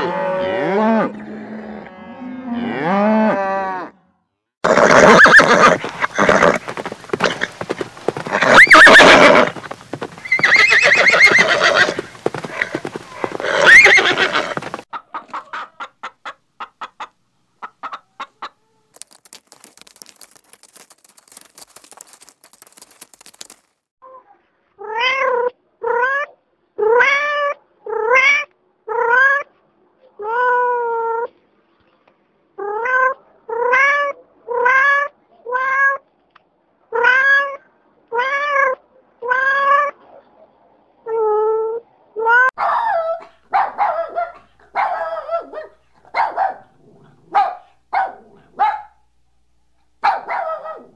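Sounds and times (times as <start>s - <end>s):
horse whinnying and snorting: 4.6s - 14.8s.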